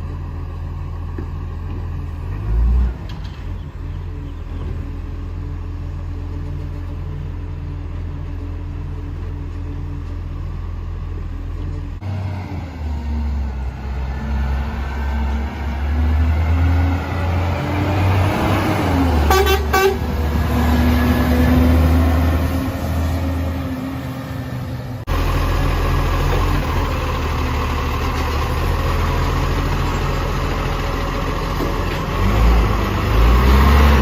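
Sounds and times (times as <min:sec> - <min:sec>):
diesel truck engine running: 0:00.0 - 0:34.0
horn toots: 0:19.2 - 0:20.2.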